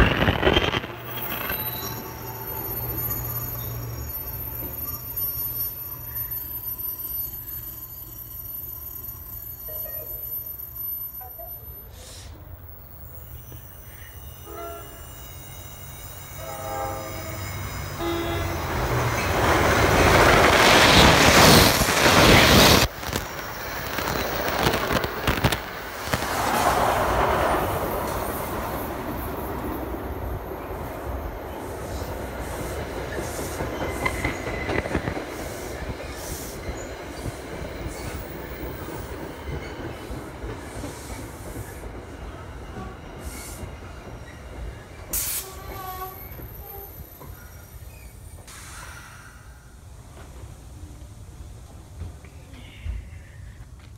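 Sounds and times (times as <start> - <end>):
train passing at speed: 0.0 - 53.9
train horn: 14.4 - 15.3, 16.3 - 18.8, 45.2 - 47.0.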